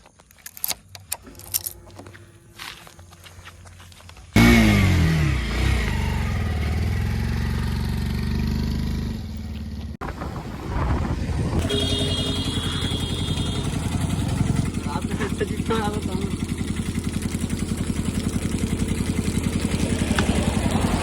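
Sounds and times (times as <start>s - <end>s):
engine running: 0.5s - 21.0s
heavy diesel engine starting: 1.2s - 9.1s, 10.2s - 21.0s.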